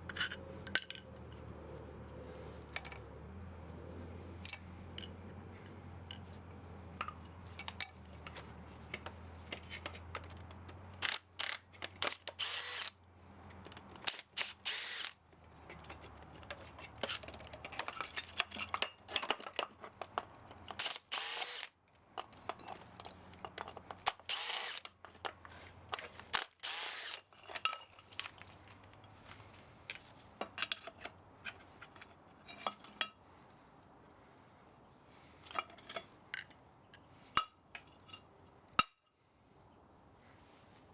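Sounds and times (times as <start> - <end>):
metal parts clicking and knocking: 7.0 - 12.9
power drill whining: 12.4 - 12.9, 14.1 - 15.1, 20.8 - 21.7, 24.1 - 24.9, 26.4 - 27.2.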